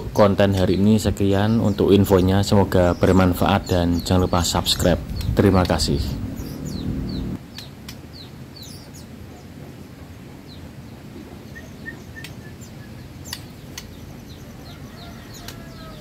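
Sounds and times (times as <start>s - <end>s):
low hum: 4.7s - 7.4s.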